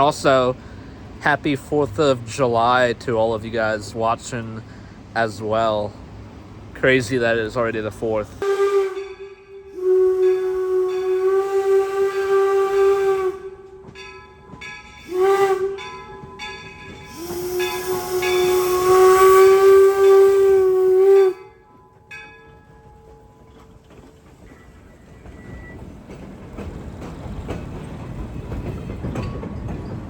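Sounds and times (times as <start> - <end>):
train rumbling: 0.0 - 30.0
steam locomotive whistle: 8.4 - 14.0, 15.0 - 21.7
steam hissing: 15.0 - 21.4.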